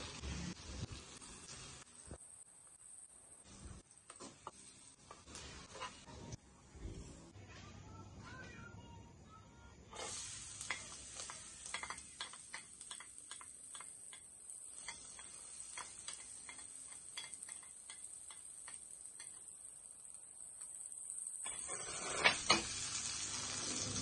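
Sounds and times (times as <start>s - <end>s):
garlic and onion sizzling in oil: 0.0s - 6.4s, 9.9s - 24.0s
wooden spatula scraping a plate: 4.1s - 6.3s, 21.5s - 22.6s.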